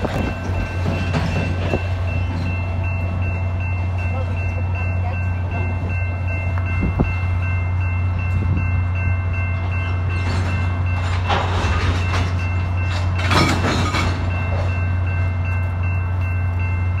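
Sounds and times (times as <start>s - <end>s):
freight train rumbling past: 0.0s - 17.0s
train cars rattling: 0.0s - 17.0s.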